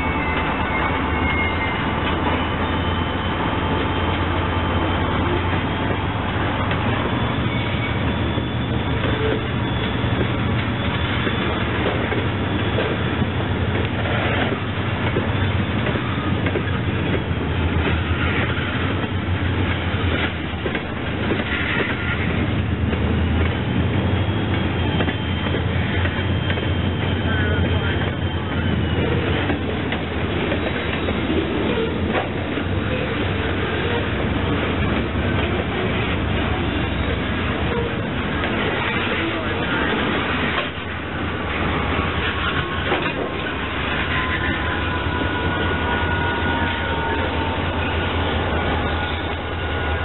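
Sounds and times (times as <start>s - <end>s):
diesel locomotive drone: 0.0s - 50.0s
wheel squeal: 0.0s - 50.0s.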